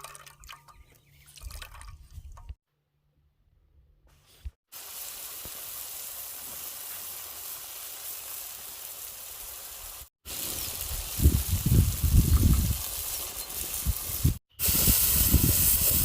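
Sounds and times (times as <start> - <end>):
fish sizzling in hot oil: 4.7 - 16.0.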